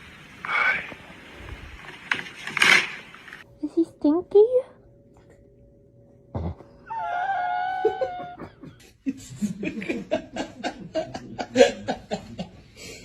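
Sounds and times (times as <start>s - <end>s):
person laughing hard: 7.8s - 12.6s.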